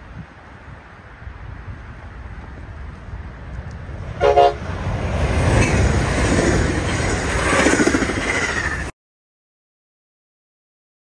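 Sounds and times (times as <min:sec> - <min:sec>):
train wheels rumbling on rails: 0:00.7 - 0:08.9
train horn toot: 0:04.2 - 0:04.7.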